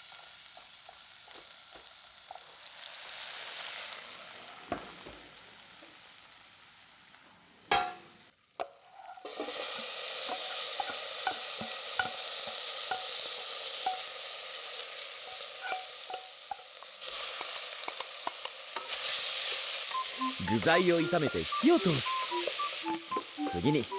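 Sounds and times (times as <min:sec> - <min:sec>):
ingredients sizzling in a pot: 0:00.0 - 0:23.9.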